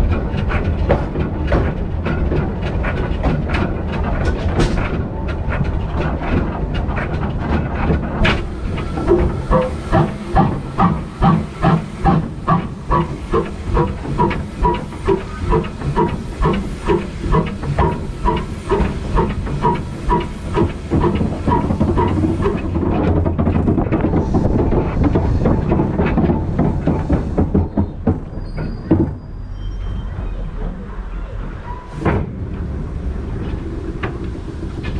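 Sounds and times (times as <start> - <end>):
locomotive exhaust beats: 0.0 - 34.9
steam hissing: 7.8 - 27.8, 31.8 - 34.9.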